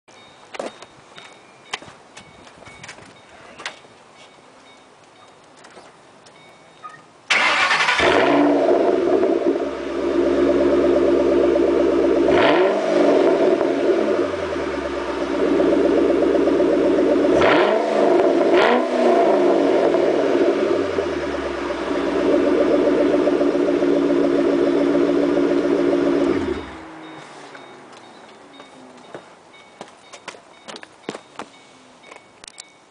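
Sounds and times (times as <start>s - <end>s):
engine revving: 7.3s - 27.1s
car engine starting and idling: 7.3s - 28.0s.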